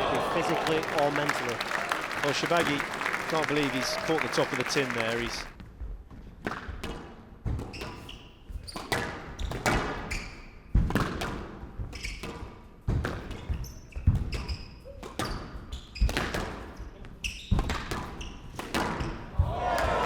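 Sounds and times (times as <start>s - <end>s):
shoe squeaks: 10.1s - 10.6s, 13.4s - 16.1s, 17.2s - 17.6s
squash ball hits: 10.8s - 11.5s.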